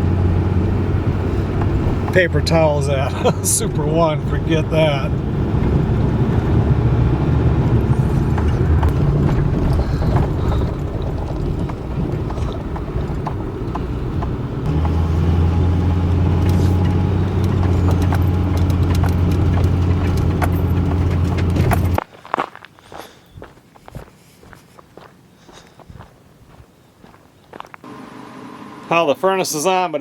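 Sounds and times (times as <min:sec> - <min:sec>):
truck engine rumble: 0:00.0 - 0:23.5
road noise: 0:00.0 - 0:30.0.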